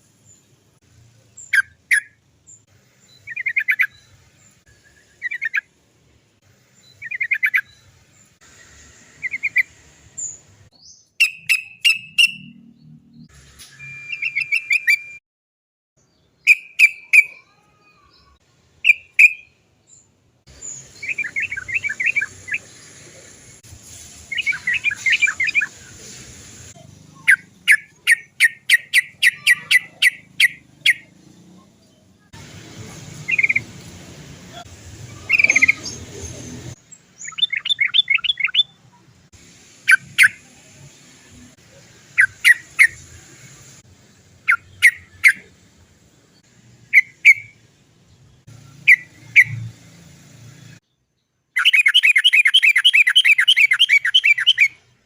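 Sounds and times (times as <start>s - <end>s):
bulbul chattering call: 27.1s - 31.1s, 35.0s - 36.4s, 51.6s - 54.8s.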